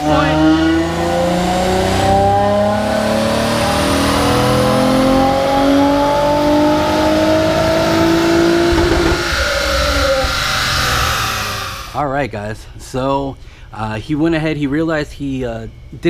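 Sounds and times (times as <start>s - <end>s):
car engine revving at full throttle: 0.0s - 12.0s.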